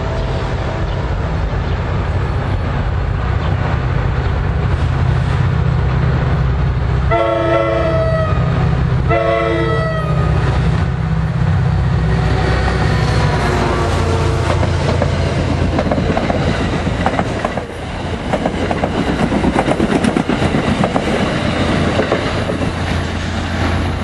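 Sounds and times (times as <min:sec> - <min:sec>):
locomotive low rumble: 0:00.0 - 0:24.0
train horn blasts: 0:07.1 - 0:10.6, 0:12.2 - 0:14.8.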